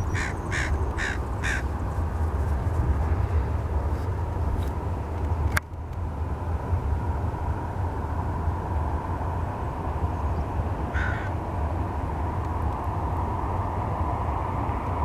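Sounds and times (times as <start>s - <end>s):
jet engines rumbling at takeoff: 0.0s - 15.0s
crow cawing: 0.1s - 1.6s, 10.9s - 11.3s.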